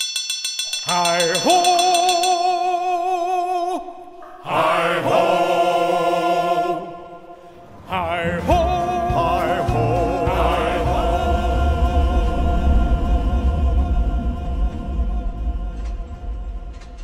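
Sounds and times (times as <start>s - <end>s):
voices singing with vibrato: 0.8s - 17.0s
low rumble: 7.6s - 17.0s.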